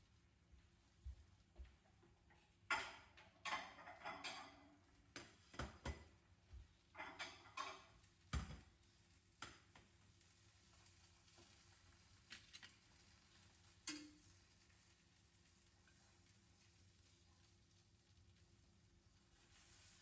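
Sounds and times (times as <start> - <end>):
kitchen utensils clicking and knocking: 2.7 - 6.2, 6.9 - 8.8, 13.8 - 14.3.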